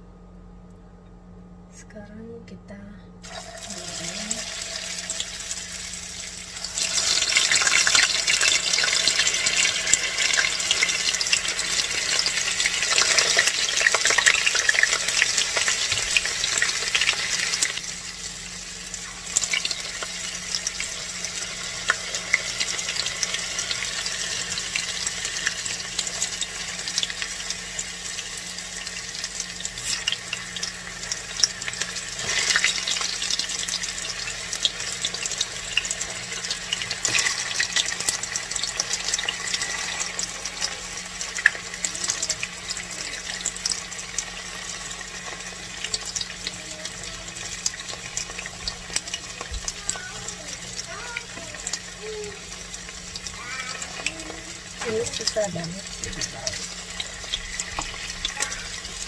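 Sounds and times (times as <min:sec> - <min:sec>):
food sizzling in hot oil: 0:03.2 - 0:59.0
spatula turning food: 0:28.8 - 0:59.0.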